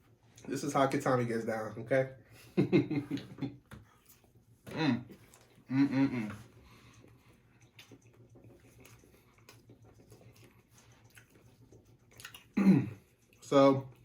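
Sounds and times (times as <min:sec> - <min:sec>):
chewing with small clicks: 0:00.1 - 0:00.6, 0:05.1 - 0:14.0.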